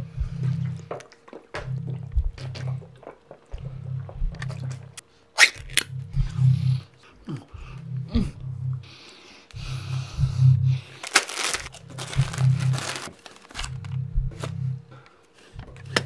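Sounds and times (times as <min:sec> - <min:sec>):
low throbbing pulse: 0:00.0 - 0:01.0, 0:01.6 - 0:05.0, 0:05.6 - 0:16.0
wet gulping and slurping: 0:00.3 - 0:05.0.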